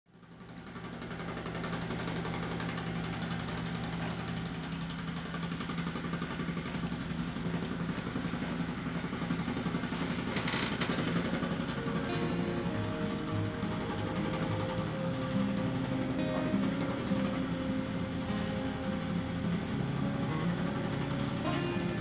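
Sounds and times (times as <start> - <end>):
construction machinery running: 0.1 - 22.0.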